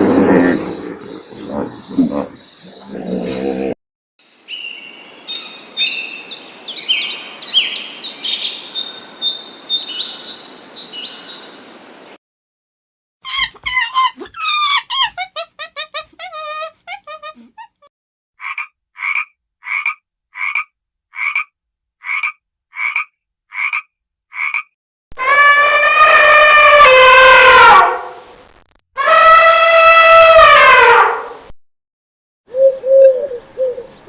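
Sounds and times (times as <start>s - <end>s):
animal calls: 13.2s - 20.6s.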